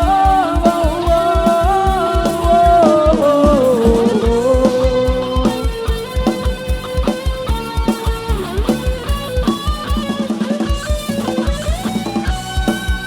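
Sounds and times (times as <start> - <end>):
dance-band music over loudspeakers: 0.0 - 13.0.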